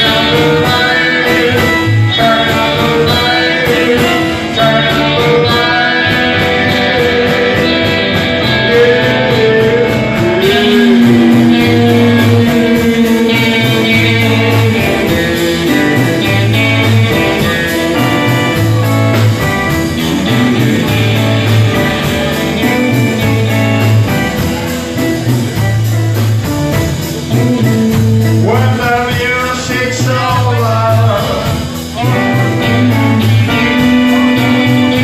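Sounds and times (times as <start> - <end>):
person singing: 0.0 - 25.3, 27.2 - 35.0
bass guitar figure: 0.0 - 35.0
electric guitar: 0.0 - 35.0.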